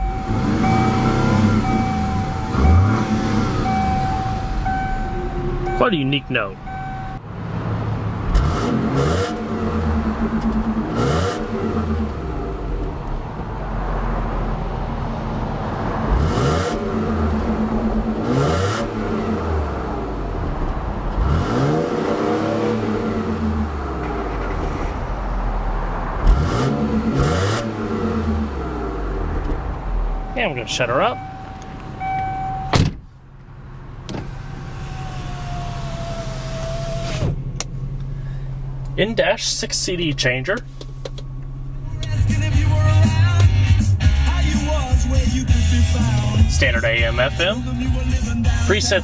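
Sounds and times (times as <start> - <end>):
steady chime tone: 0.0 - 7.2, 30.1 - 32.7
car engine revving: 0.0 - 49.0
electric window motor whining: 34.1 - 37.4.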